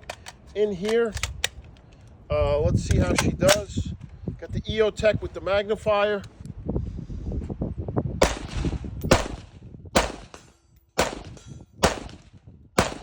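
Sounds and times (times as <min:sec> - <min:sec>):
rifle shots with ringing tail: 0:08.2 - 0:13.0.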